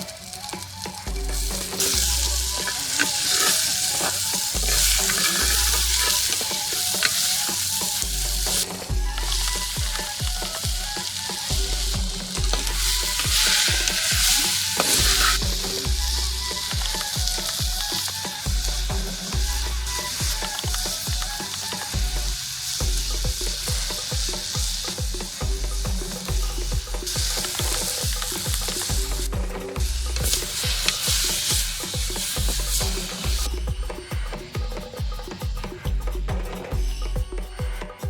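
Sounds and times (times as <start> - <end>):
food sizzling in a pot: 0.0 - 37.0.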